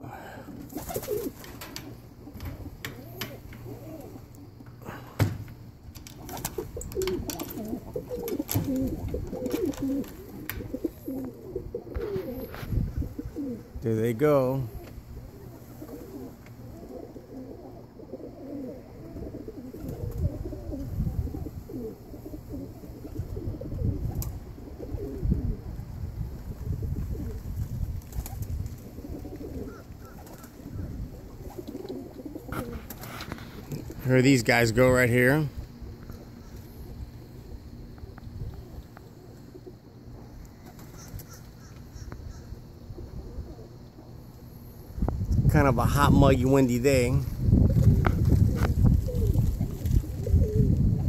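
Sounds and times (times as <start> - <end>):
pigeons cooing: 0.0 - 45.1, 45.8 - 51.0
wind rumble on microphone: 8.5 - 14.0, 19.1 - 31.8, 44.8 - 51.0.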